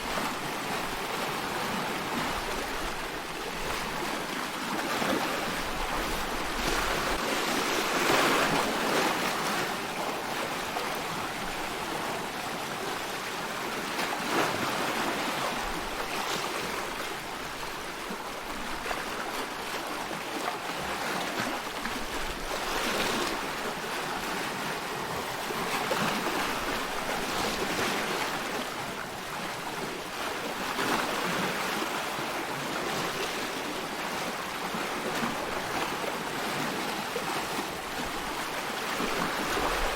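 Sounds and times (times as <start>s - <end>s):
sea waves washing: 5.2s - 11.6s.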